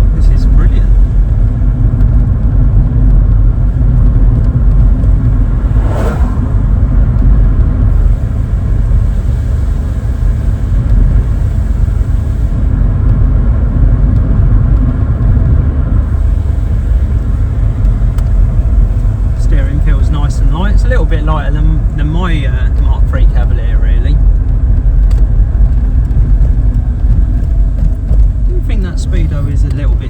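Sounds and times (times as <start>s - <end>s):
car engine and road rumble: 0.0s - 30.0s
high-pitched sweep: 5.2s - 7.2s.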